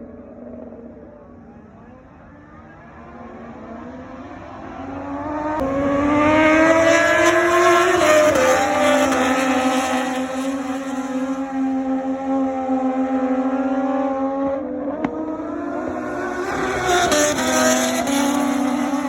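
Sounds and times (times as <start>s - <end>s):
motorcycle engine revving high: 5.6s - 11.6s, 15.2s - 19.0s.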